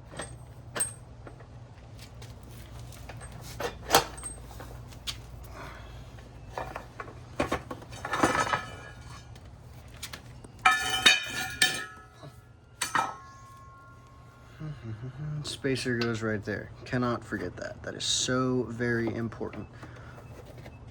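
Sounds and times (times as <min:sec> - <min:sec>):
metal tools clinking and knocking: 0:00.1 - 0:01.4, 0:02.9 - 0:04.8, 0:06.5 - 0:09.4, 0:10.6 - 0:14.2
ringing metallic clanks: 0:10.6 - 0:14.4.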